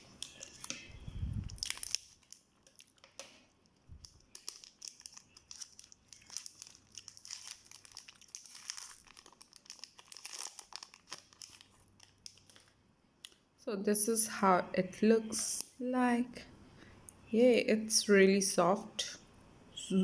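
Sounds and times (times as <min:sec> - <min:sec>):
plastic wrapper crinkling: 0:00.0 - 0:13.4.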